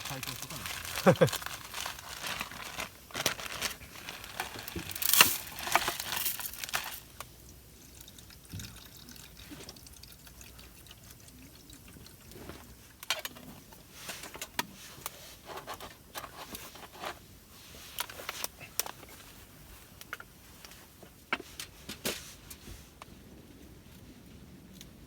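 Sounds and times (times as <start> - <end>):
liquid pouring: 6.5 - 12.4.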